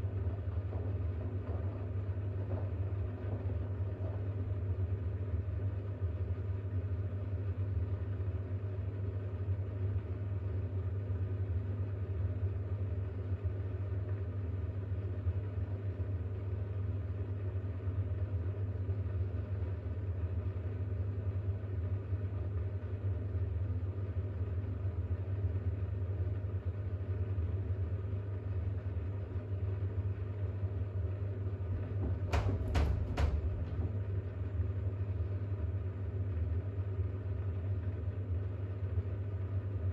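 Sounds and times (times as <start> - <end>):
washing machine humming: 30.8 - 34.7
quick knocks: 31.7 - 34.3.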